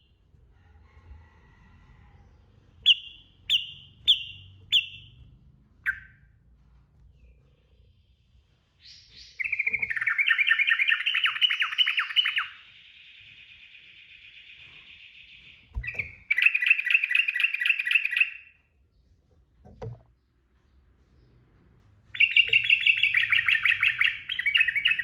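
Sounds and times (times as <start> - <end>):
bird singing rolling trills: 2.8 - 5.2, 5.8 - 6.3, 7.2 - 18.6, 22.1 - 25.0.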